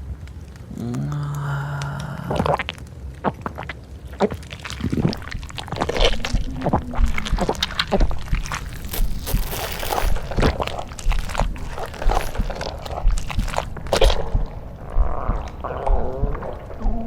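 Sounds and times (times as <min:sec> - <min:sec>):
low vocal sound: 0:00.6 - 0:02.7, 0:10.2 - 0:17.0
wet mouth swallowing sounds: 0:00.7 - 0:17.0.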